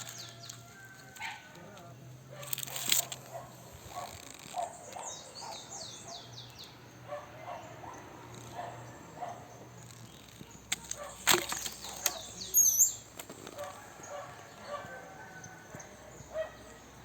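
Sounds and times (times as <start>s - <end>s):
distant dog barking: 1.2s - 1.7s, 2.3s - 6.4s, 7.0s - 9.6s, 10.8s - 12.8s, 13.5s - 17.0s
bird chirping: 3.1s - 17.0s.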